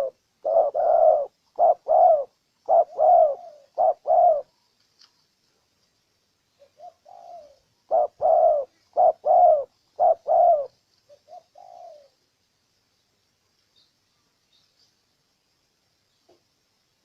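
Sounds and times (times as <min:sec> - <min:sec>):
dove cooing: 0:00.0 - 0:04.6, 0:06.6 - 0:12.2.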